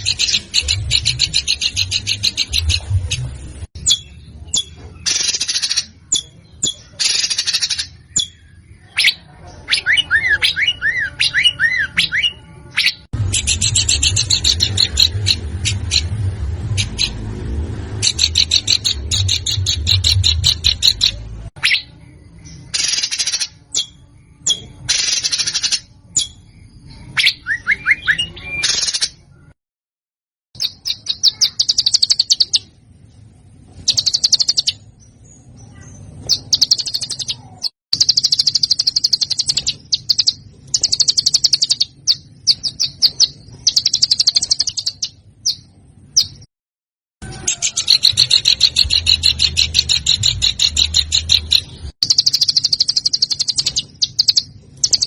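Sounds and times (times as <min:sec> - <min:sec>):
songbird trills: 0:00.0 - 0:03.2, 0:03.8 - 0:17.2, 0:18.0 - 0:29.5, 0:30.6 - 0:32.8, 0:33.8 - 0:46.5, 0:47.2 - 0:55.0
low background rumble: 0:00.0 - 0:06.2, 0:12.4 - 0:22.8.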